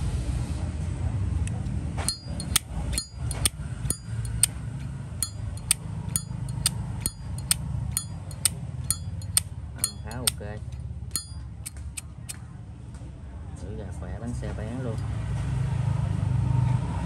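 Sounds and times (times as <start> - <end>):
lighter lid clinking open and shut: 2.1 - 4.5, 5.2 - 10.4, 11.1 - 12.0.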